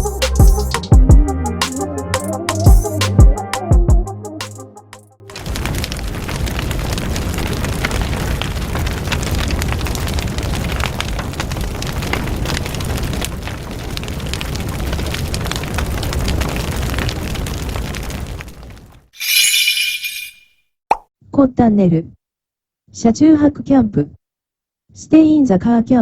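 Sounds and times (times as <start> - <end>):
bonfire crackling and popping: 5.2 - 19.1.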